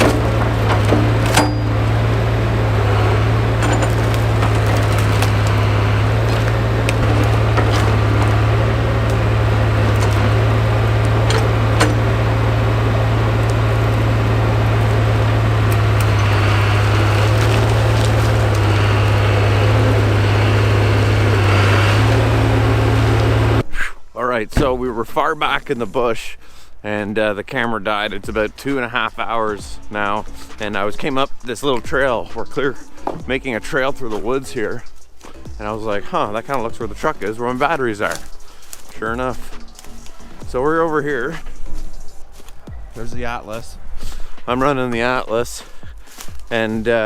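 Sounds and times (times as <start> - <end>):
wood and brush snapping: 0.0 - 23.6, 33.0 - 40.6, 41.3 - 47.0
excavator engine running: 0.0 - 47.0.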